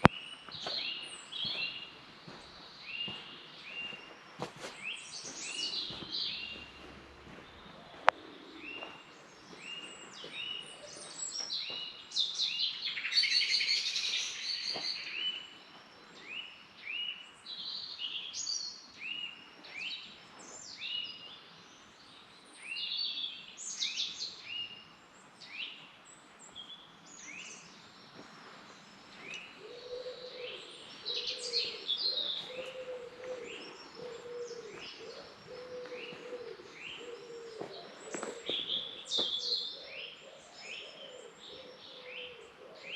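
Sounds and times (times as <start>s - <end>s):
birds chirping and trilling: 0.0s - 42.9s
bird low call: 29.2s - 42.9s.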